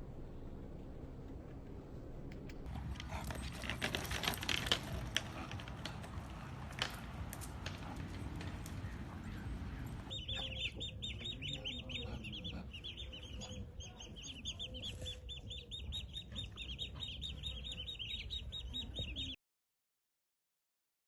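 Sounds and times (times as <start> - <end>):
bird chirping rapidly: 9.3 - 19.4.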